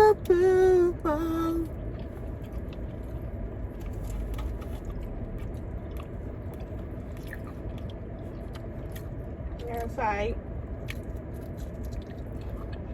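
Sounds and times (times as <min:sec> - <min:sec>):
person humming: 0:00.0 - 0:01.7
faint chewing: 0:01.2 - 0:10.0, 0:10.6 - 0:12.9.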